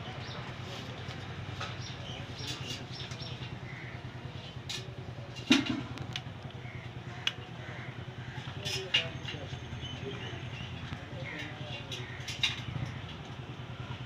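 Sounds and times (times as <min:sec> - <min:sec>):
clicks and knocks of bicycle repair: 0:01.1 - 0:03.5, 0:04.6 - 0:06.4, 0:08.4 - 0:09.5, 0:10.8 - 0:13.4.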